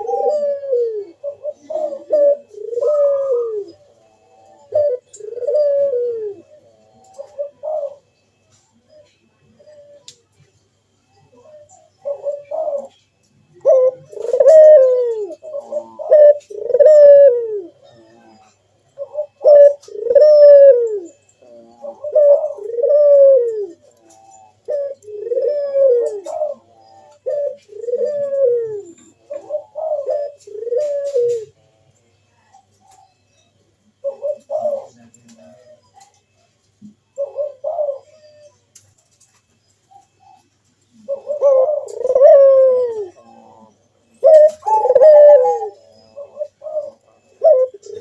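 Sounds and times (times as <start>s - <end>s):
dove cooing: 0.0s - 48.0s.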